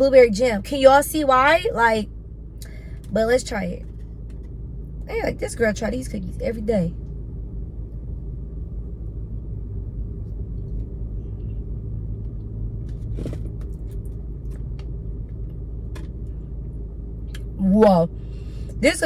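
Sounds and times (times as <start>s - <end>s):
car idling inside cabin: 0.0s - 19.0s.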